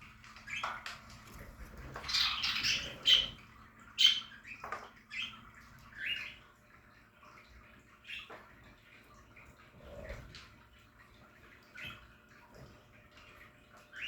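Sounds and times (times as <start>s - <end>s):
budgerigars chirping and squawking: 0.4s - 6.5s.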